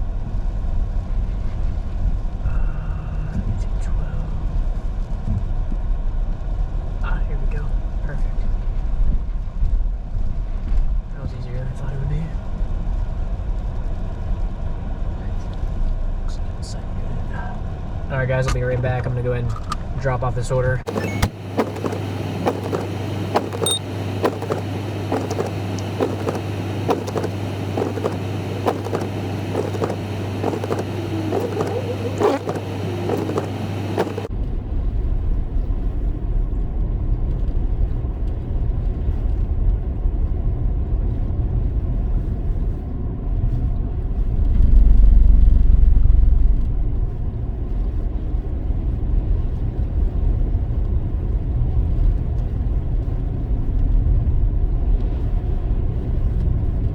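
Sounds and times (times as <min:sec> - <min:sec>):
car driving rumble: 0:20.9 - 0:56.9
car engine hum: 0:20.9 - 0:56.9.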